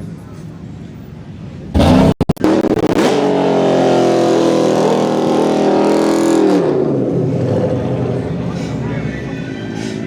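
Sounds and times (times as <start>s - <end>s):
car engine revving hard: 1.8s - 7.8s.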